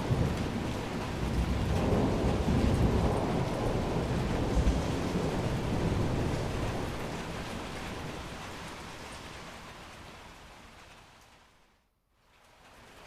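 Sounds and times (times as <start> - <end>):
thunder rumbling: 0.0 - 9.4
steady rain: 0.0 - 13.0.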